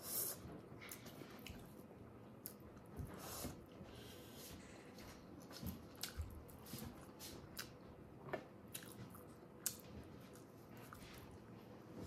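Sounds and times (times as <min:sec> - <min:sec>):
wet chewing and lip smacks: 0:05.4 - 0:11.4.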